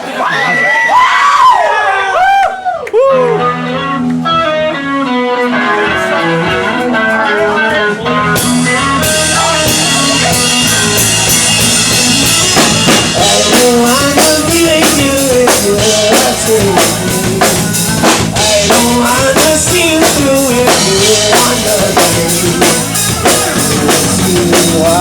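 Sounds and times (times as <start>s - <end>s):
picked electric guitar notes: 3.0s - 25.0s
drum kit and cymbals: 6.0s - 25.0s.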